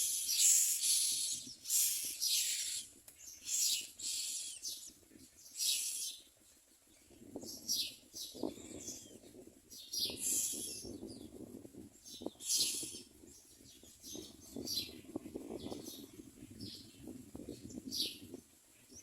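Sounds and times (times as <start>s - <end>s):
nestlings giving raspy hissing calls: 0.0s - 4.9s, 5.5s - 6.2s, 10.1s - 10.9s, 12.4s - 13.1s.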